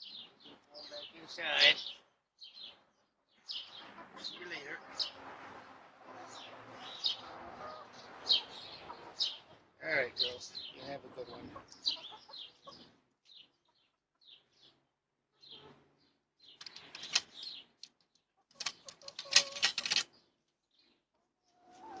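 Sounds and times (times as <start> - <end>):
hens chirping: 0.0 - 14.8, 20.8 - 22.0.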